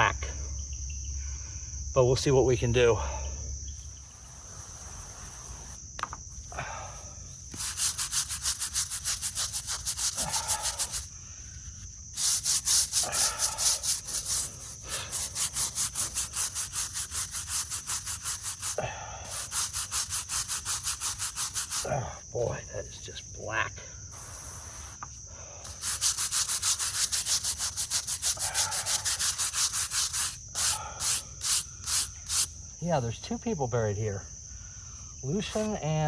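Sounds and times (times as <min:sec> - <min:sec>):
crickets chirring: 0:00.0 - 0:36.0
brush scrubbing stone: 0:03.9 - 0:05.8, 0:07.5 - 0:11.1, 0:11.7 - 0:22.0, 0:24.1 - 0:32.5, 0:35.3 - 0:36.0.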